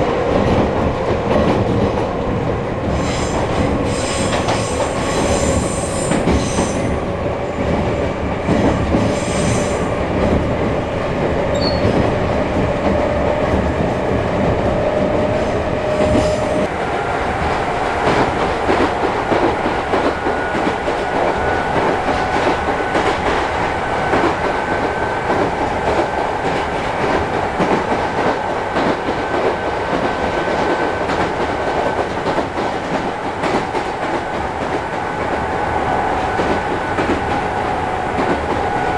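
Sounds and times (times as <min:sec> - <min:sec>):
train wheels clattering over rail joints: 0:07.6 - 0:16.7.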